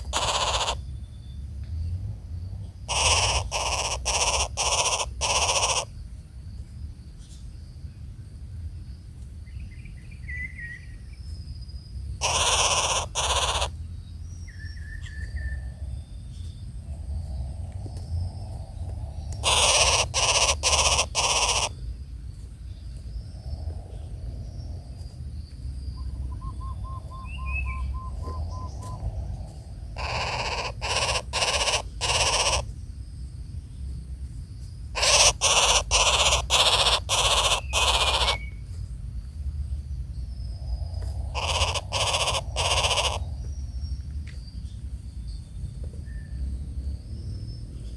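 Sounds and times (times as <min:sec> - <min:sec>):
faint low hoots: 0:00.0 - 0:00.8, 0:16.9 - 0:21.8, 0:26.0 - 0:32.7, 0:40.9 - 0:43.5
harsh rasping bird calls: 0:00.0 - 0:00.9, 0:02.6 - 0:06.0, 0:12.2 - 0:15.6, 0:19.2 - 0:21.9, 0:25.9 - 0:32.8, 0:34.9 - 0:38.7, 0:41.0 - 0:44.0
bird trill: 0:00.0 - 0:01.4, 0:02.8 - 0:06.0, 0:12.2 - 0:16.6, 0:19.2 - 0:21.8, 0:25.9 - 0:29.1, 0:30.0 - 0:32.7, 0:35.0 - 0:38.6, 0:41.3 - 0:44.0
high insect drone: 0:00.0 - 0:47.9.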